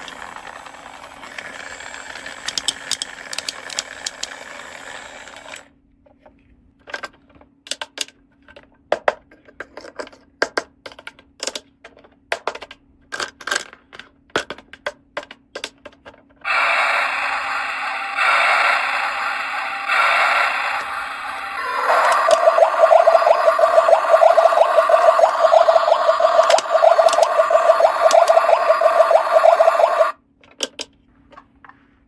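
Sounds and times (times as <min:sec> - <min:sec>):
light clicks of plastic toy parts: 0:05.5 - 0:16.4, 0:30.4 - 0:31.8.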